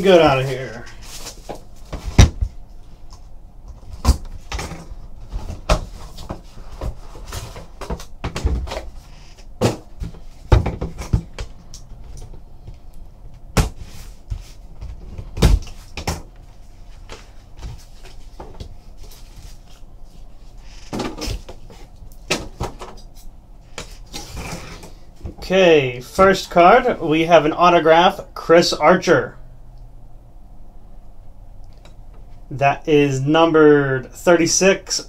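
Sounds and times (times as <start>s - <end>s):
knocks and clicks of packaging: 1.2s - 8.9s, 9.6s - 12.4s, 20.9s - 23.1s.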